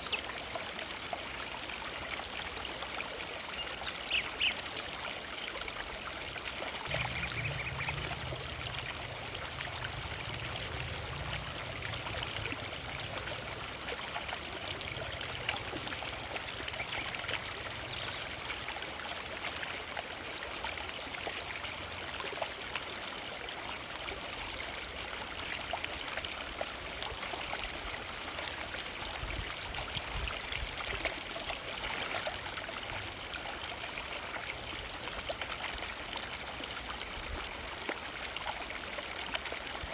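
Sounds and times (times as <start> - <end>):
river water rushing over stones: 4.0 - 19.4
low rumble: 6.1 - 15.6.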